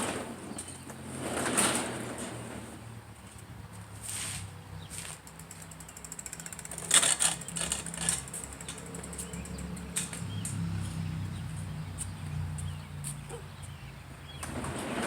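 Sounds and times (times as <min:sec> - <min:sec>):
bicycle rattling clatter: 0:05.0 - 0:11.0
rapid ticking: 0:05.2 - 0:09.9.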